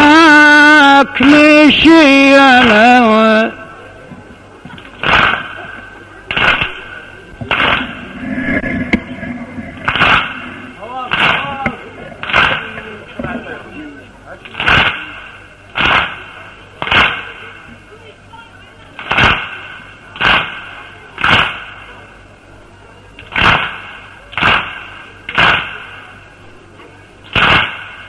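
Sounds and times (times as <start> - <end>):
crowd beating chests in unison: 4.7 - 9.1, 9.8 - 12.9, 14.4 - 15.2, 16.8 - 17.4, 23.3 - 25.9.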